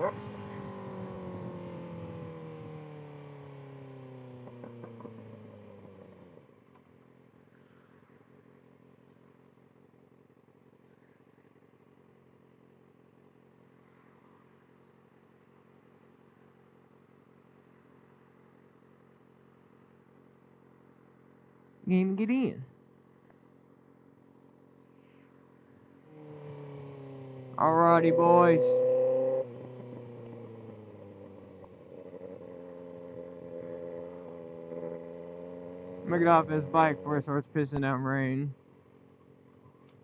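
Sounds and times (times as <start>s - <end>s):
motorcycle engine winding down: 0.0s - 6.4s, 25.8s - 37.5s
motorcycle engine idling: 0.0s - 21.9s, 22.7s - 40.0s.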